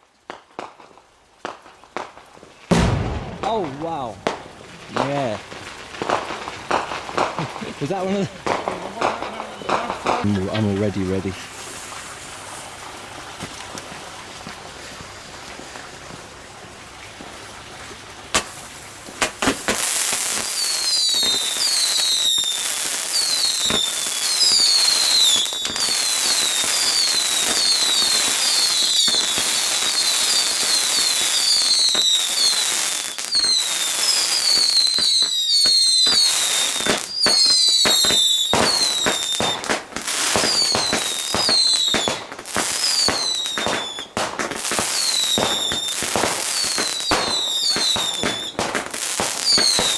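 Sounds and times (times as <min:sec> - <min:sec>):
firework bangs and crackles: 0:00.0 - 0:49.9
firework whistles: 0:19.2 - 0:49.9.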